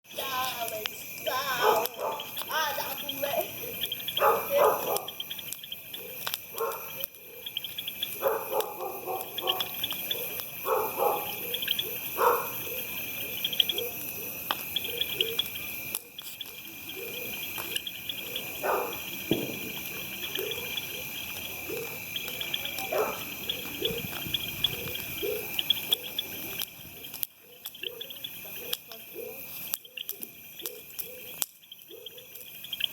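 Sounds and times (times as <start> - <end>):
insects chirping: 0.1 - 32.9
dog barking: 1.6 - 2.3, 3.6 - 5.2, 6.0 - 7.5, 8.2 - 12.8, 13.7 - 15.4, 18.6 - 19.1, 22.8 - 23.3, 25.2 - 25.5.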